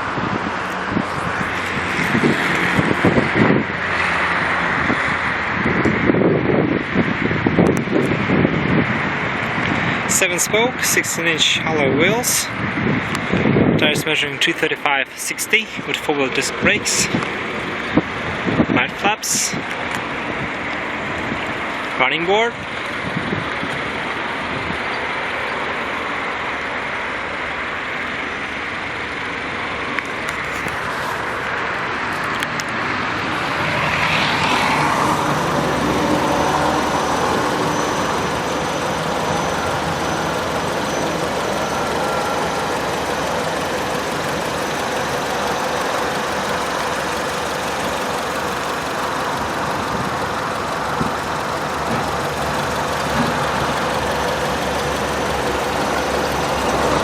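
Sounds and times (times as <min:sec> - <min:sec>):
vehicle passing: 0:00.0 - 0:10.2, 0:30.8 - 0:57.0
car engine idling: 0:00.0 - 0:13.7, 0:22.6 - 0:57.0.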